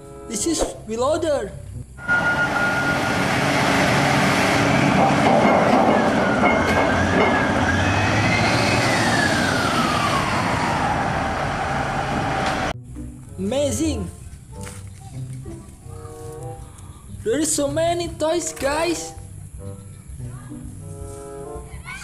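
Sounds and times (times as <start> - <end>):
siren-like tone: 2.0 - 12.7.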